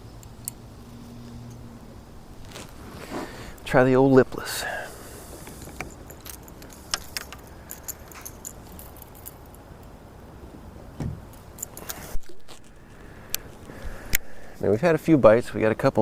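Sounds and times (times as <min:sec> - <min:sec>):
low wind rush: 0:00.0 - 0:16.0
fishing tackle clicks and jingle: 0:05.4 - 0:09.9, 0:11.4 - 0:12.6.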